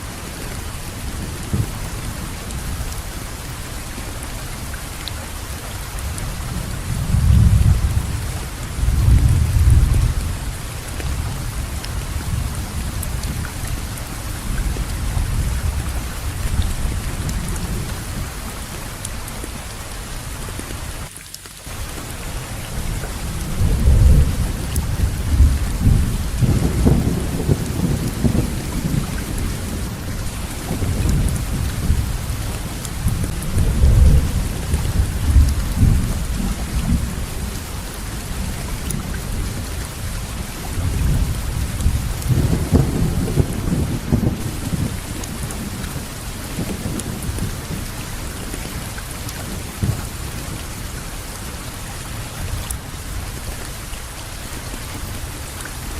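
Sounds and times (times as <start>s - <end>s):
heavy rain: 0.0s - 55.9s
rolling thunder: 6.4s - 13.9s, 22.8s - 47.9s.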